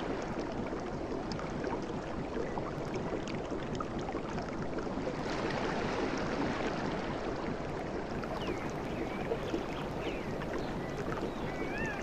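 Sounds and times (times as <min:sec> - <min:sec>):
faint bird chirps: 0:08.4 - 0:12.0.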